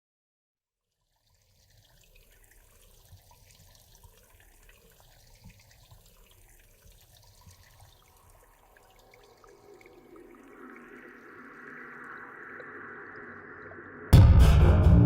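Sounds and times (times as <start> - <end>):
running splashing water: 1.2 - 12.5
low rumble: 14.1 - 15.0.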